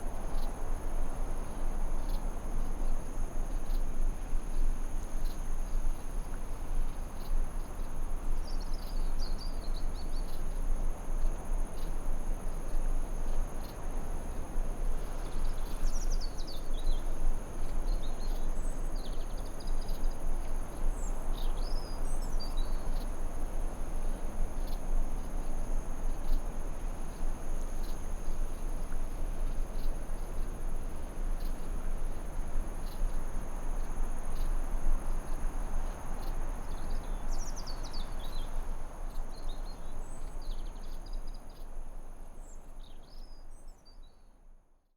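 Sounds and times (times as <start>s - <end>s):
crickets chirping: 15.1s - 43.9s.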